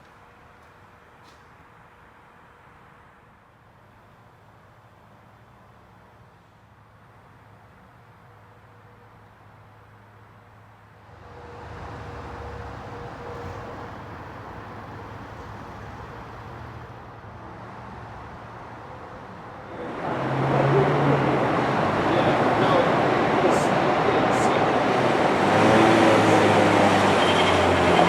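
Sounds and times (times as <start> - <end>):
car passing by: 19.2 - 28.0.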